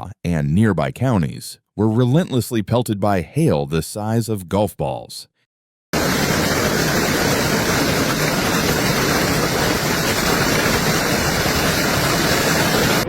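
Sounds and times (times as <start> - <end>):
heavy hail clattering: 6.0 - 13.0.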